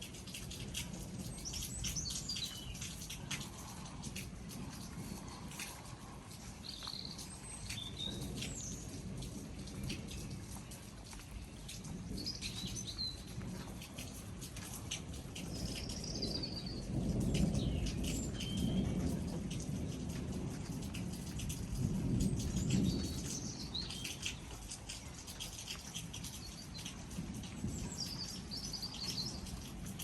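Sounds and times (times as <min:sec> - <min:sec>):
rain pattering: 0:00.0 - 0:30.0
thunder rumbling: 0:00.4 - 0:30.0
birds chirping: 0:01.2 - 0:09.0.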